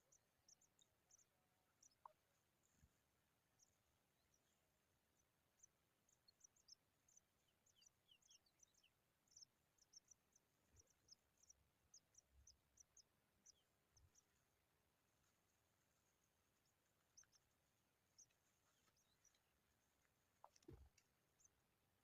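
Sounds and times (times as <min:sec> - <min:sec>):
bird chicks chirping: 0:05.6 - 0:21.6.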